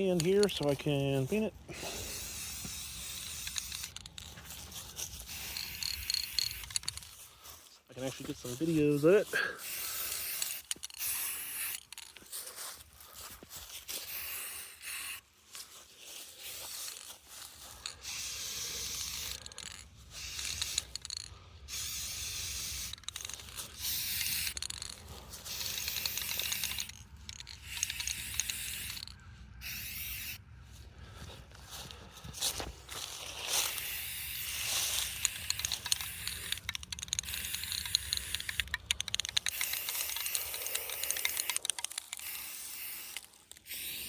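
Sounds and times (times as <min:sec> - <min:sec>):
aerosol can rattling: 0:00.0 - 0:07.2, 0:08.1 - 0:12.4, 0:13.8 - 0:15.2, 0:16.4 - 0:30.4, 0:33.6 - 0:44.0
aerosol can spraying: 0:01.8 - 0:04.2, 0:05.0 - 0:06.9, 0:08.6 - 0:12.1, 0:13.9 - 0:15.2, 0:18.0 - 0:19.6, 0:20.2 - 0:30.4, 0:33.7 - 0:44.0.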